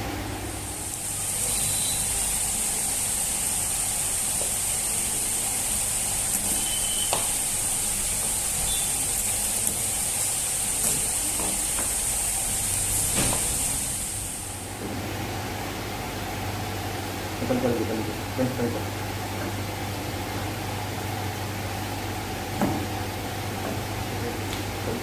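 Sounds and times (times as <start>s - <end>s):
steady high-pitched hiss: 0.0s - 14.7s.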